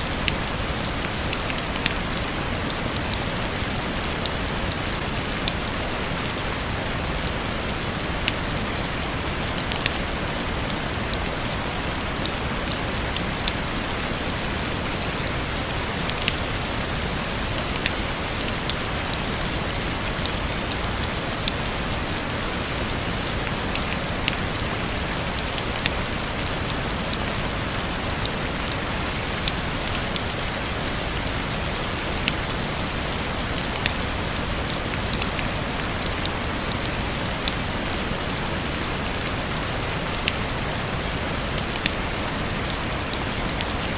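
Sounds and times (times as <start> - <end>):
rain hissing: 0.0 - 43.9.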